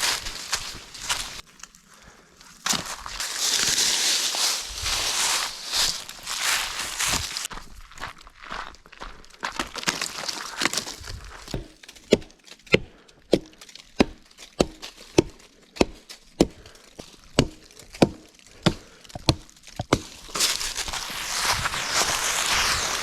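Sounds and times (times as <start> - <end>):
rustling and crunching: 0.0 - 12.8, 13.6 - 23.0
wood being chopped by hand: 11.5 - 21.0.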